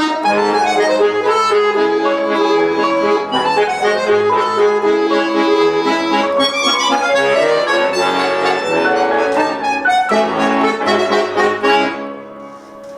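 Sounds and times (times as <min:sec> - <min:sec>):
accordion playing a waltz: 0:00.0 - 0:12.9
piano accompaniment: 0:00.0 - 0:12.9.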